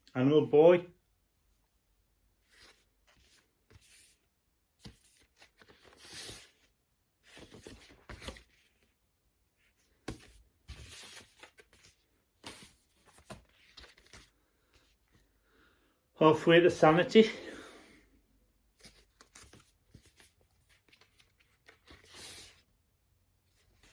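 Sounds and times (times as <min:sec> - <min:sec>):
cardboard sleeves rustling: 0:02.3 - 0:15.4, 0:18.7 - 0:23.9.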